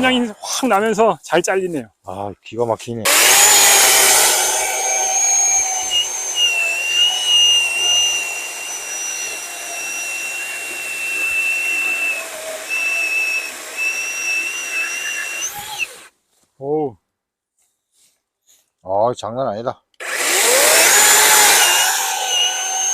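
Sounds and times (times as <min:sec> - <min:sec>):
electric chainsaw cutting log: 0:03.1 - 0:16.1, 0:20.0 - 0:22.9.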